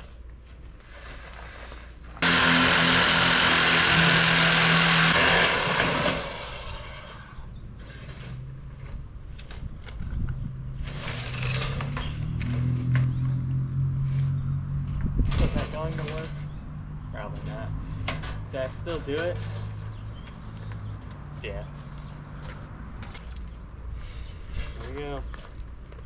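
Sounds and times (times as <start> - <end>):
angle grinder cutting metal: 2.2 - 7.4
motor hum: 2.2 - 7.4.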